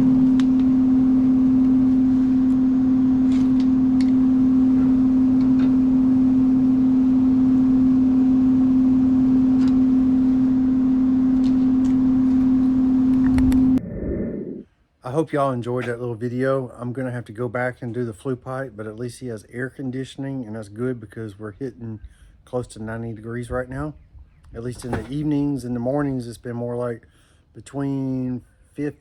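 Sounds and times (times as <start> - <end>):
air conditioner hum: 0.0 - 13.8, 15.0 - 29.0
rush of air: 13.4 - 14.7.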